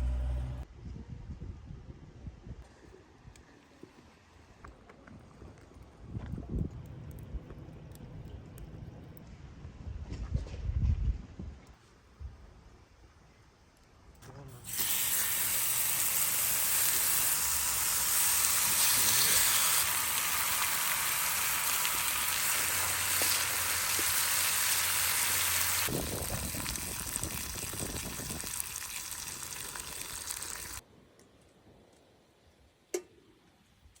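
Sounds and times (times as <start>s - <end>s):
food sizzling in a pan: 14.6s - 30.8s.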